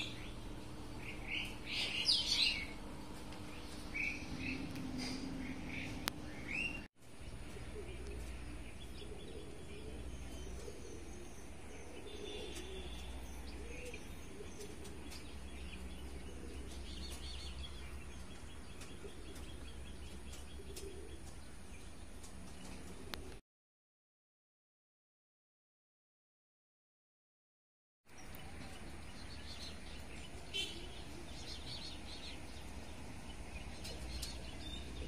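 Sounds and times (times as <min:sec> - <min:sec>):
birds chirping and calling: 0:00.0 - 0:23.4, 0:28.1 - 0:35.0.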